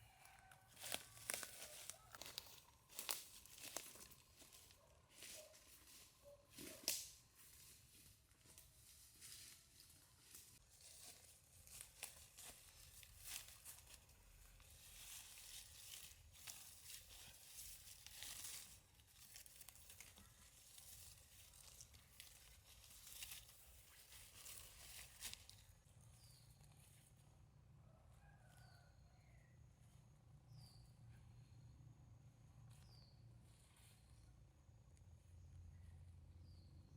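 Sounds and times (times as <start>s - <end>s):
faint bird chirps: 28.2s - 32.0s, 32.6s - 34.5s.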